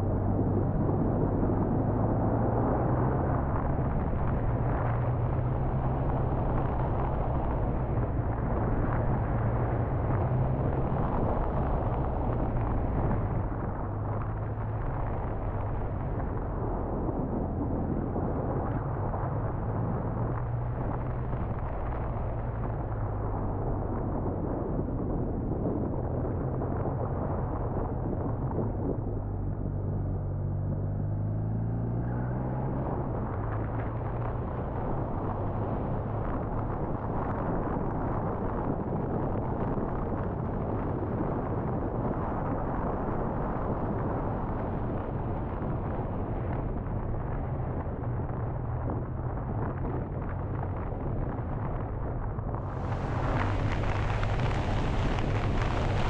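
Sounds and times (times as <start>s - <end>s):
wind and road rush: 0.0s - 56.0s.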